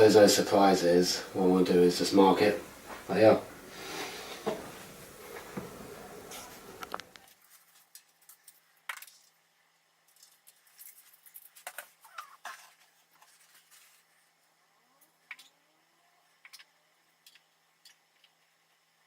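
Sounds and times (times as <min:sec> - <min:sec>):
low steady hiss: 0:00.0 - 0:12.0
small clicks and scratches: 0:10.1 - 0:14.1.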